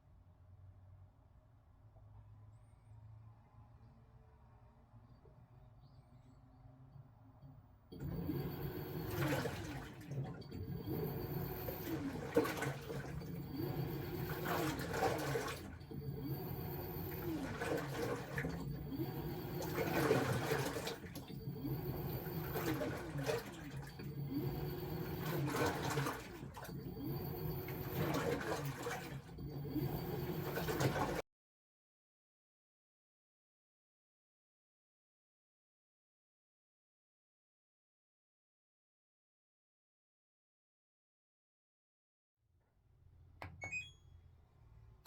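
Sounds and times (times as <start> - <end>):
washing machine motor whine: 7.9 - 31.2
churning sloshing water: 8.0 - 31.2.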